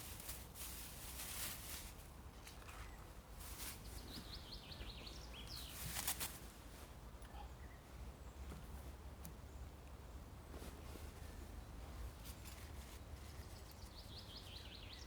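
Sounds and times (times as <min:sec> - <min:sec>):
bird chirping: 0:13.4 - 0:15.0.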